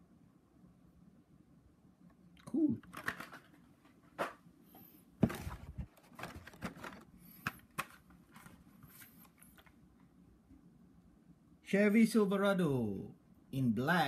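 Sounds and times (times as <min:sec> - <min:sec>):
plastic and cardboard packaging crinkling: 0:05.2 - 0:09.8.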